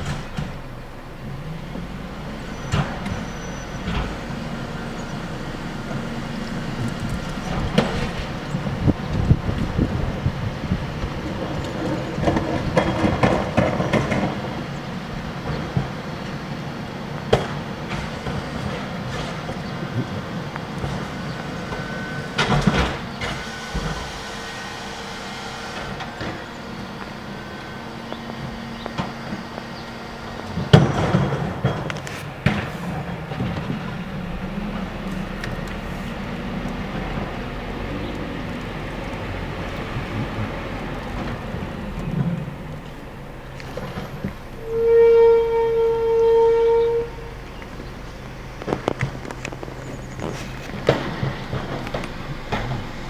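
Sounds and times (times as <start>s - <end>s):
metallic clanks and rattles: 0.0s - 1.0s
loud bang and clatter: 0.0s - 1.2s, 17.3s - 26.8s, 30.3s - 35.6s, 50.3s - 53.0s
refuse truck engine rumbling: 0.0s - 53.0s.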